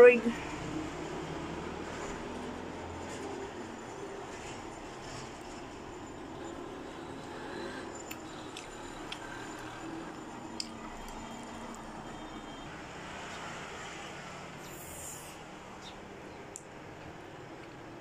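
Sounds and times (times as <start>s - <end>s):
lip clicks: 10.5s - 11.2s.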